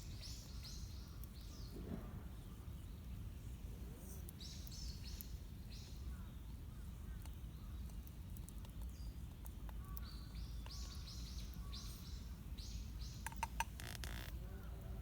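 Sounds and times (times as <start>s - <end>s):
songbird chirping: 0.0s - 15.0s
low outdoor rumble: 11.4s - 15.0s
sharp clicks: 13.2s - 14.4s.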